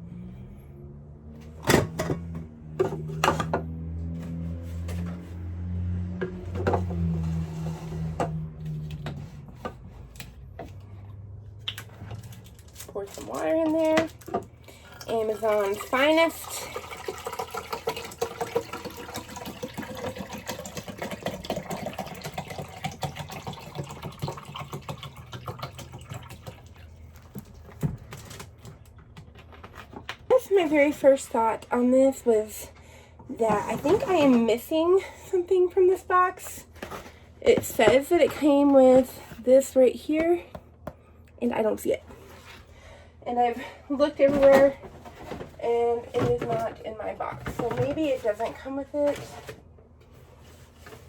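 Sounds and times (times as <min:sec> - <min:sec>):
water pouring into tank: 0:14.8 - 0:27.3.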